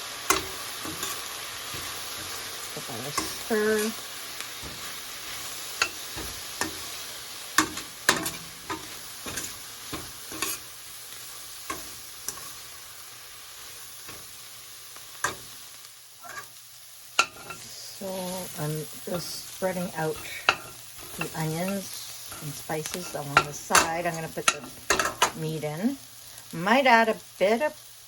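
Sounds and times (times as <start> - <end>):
onions sizzling in a frying pan: 0.0 - 28.0
utensil knocking and scraping pan: 7.6 - 10.6.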